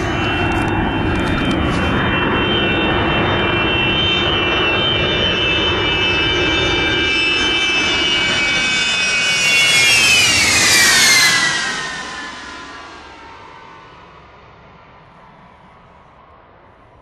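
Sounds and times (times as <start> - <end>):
jet aircraft flying low past: 0.0 - 17.0.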